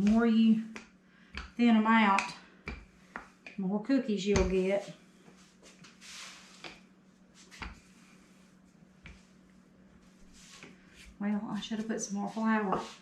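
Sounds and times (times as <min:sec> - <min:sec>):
rolling pin on dough: 0:00.0 - 0:03.6, 0:04.3 - 0:05.0, 0:05.6 - 0:13.0
soft rustle: 0:04.7 - 0:13.0.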